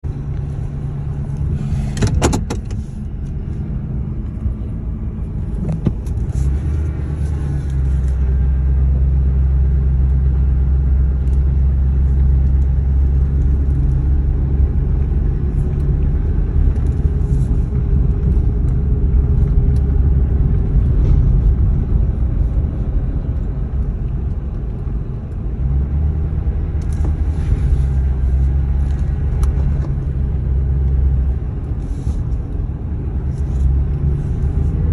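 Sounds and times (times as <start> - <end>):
truck engine humming: 0.0 - 34.9.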